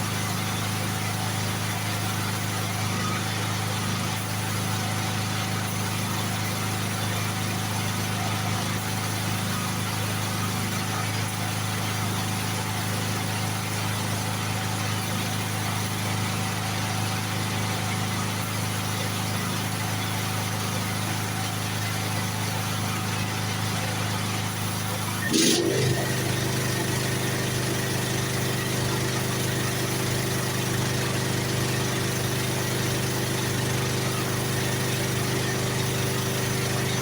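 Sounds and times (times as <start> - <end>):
steady machine hum: 25.2 - 37.0.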